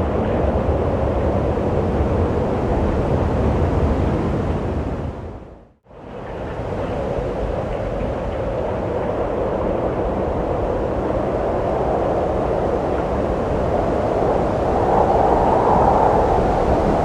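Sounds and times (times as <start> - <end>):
wind blowing: 6.9 - 17.0.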